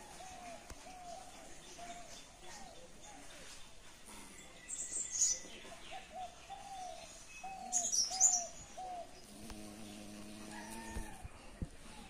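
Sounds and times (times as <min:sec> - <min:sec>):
bird calling: 0:05.0 - 0:09.4.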